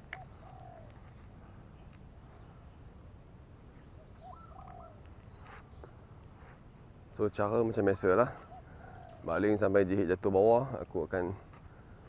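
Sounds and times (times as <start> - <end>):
bird whistling call: 4.1 - 5.6.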